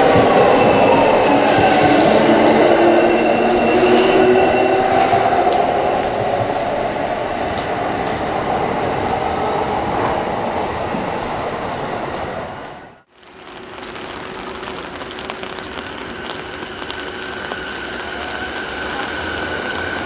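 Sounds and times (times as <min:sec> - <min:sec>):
train wheels rumbling: 0:00.0 - 0:12.9.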